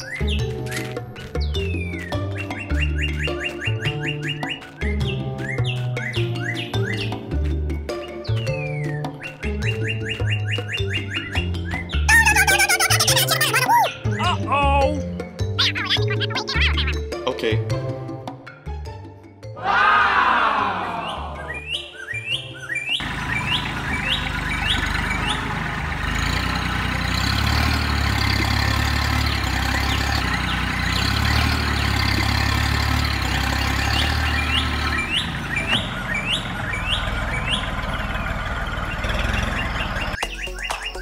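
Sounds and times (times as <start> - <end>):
small birds chirping: 0.0 - 17.2, 21.0 - 41.0
low engine-like drone: 23.0 - 27.2.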